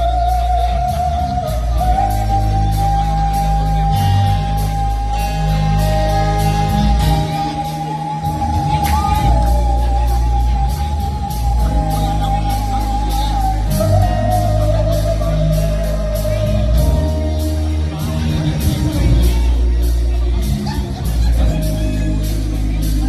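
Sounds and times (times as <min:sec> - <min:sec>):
band with bass and cymbal: 0:00.0 - 0:23.0.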